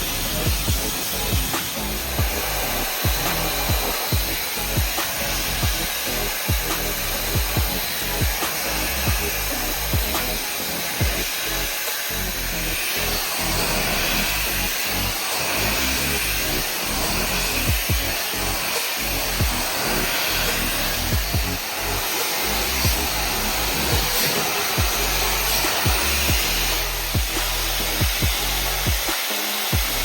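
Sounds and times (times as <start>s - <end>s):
background music with beat: 0.0s - 30.0s
hair dryer blowing: 0.0s - 30.0s.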